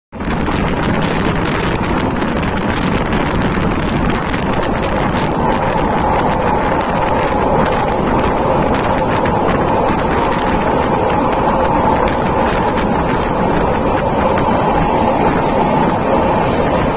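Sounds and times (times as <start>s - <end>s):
train rumbling on track: 0.1s - 16.9s
wind rushing past train window: 0.1s - 16.9s.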